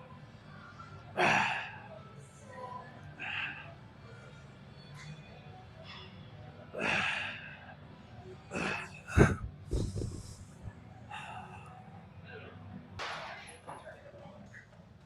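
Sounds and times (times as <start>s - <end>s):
man breathing hard: 8.6s - 11.8s.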